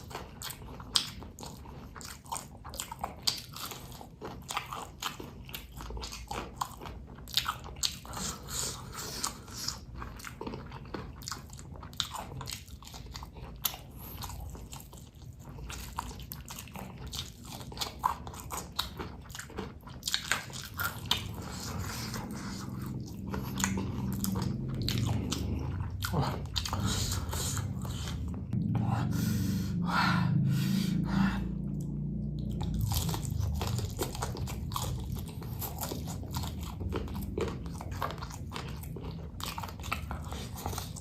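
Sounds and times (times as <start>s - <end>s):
person chewing and crunching: 0.0s - 41.0s.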